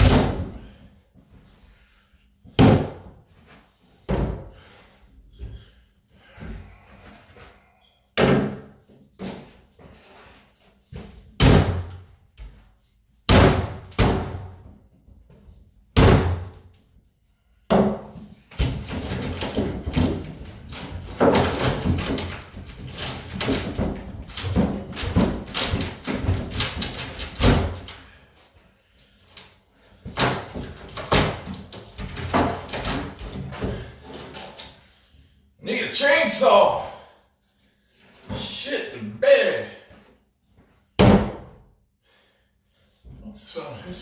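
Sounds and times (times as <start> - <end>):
loud bangs on wooden cabinet: 0.0 - 0.6, 2.6 - 3.1, 8.2 - 8.7, 11.4 - 12.0, 13.3 - 14.6, 16.0 - 16.5, 17.7 - 20.3, 41.0 - 41.6.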